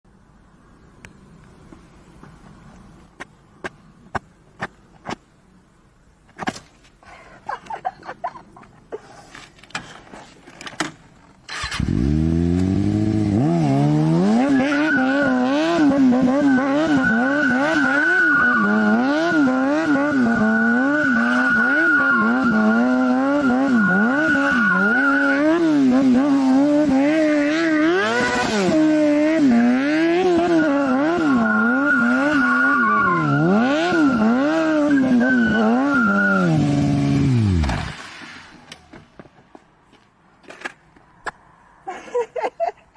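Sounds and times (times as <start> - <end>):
vehicle engine revving: 11.5 - 38.0.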